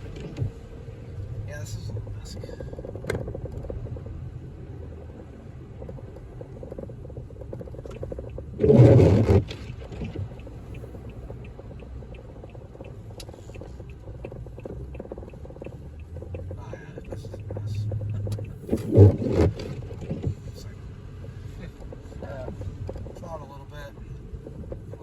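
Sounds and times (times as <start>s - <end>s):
car road and engine rumble: 0.0s - 25.0s
faint rapid ticking: 1.5s - 25.0s.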